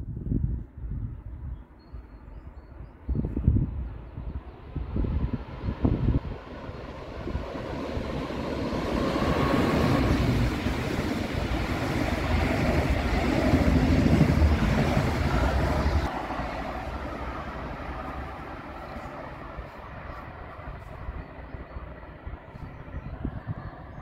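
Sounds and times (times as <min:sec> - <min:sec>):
rushing air: 0:03.4 - 0:23.8
train wheels rumbling on rail: 0:05.3 - 0:22.5.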